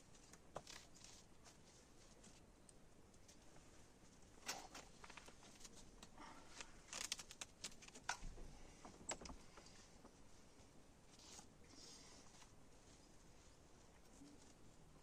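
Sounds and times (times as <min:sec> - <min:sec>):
faint clicks and light knocks: 0:04.5 - 0:10.2.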